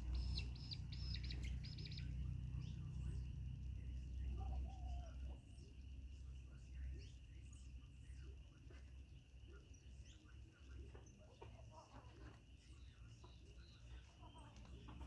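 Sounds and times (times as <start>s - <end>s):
bird chirps and calls: 0.0s - 2.8s.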